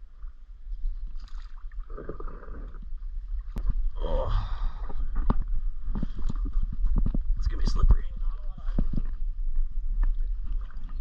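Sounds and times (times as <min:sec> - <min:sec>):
paddle strokes splashing: 0:00.1 - 0:03.7, 0:10.0 - 0:11.0
steady low rumble: 0:02.7 - 0:11.0.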